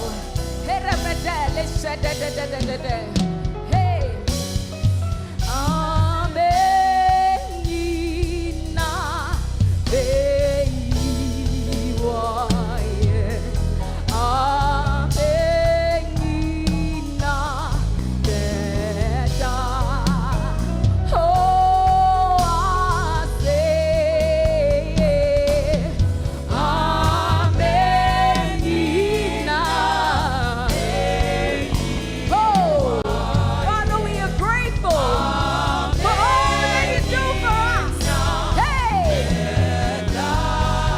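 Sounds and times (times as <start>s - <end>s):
voices singing gospel song: 0.0s - 3.2s, 21.9s - 40.9s
instrumental backing: 0.0s - 40.9s.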